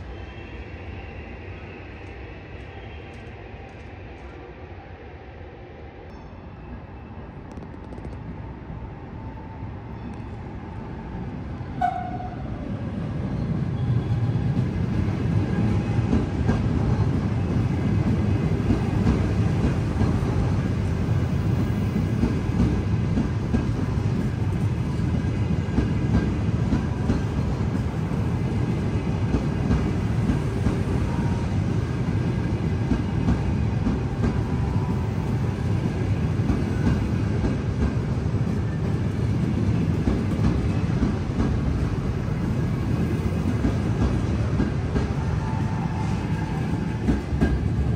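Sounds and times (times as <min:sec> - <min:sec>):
train rumbling past: 0:00.0 - 0:47.9.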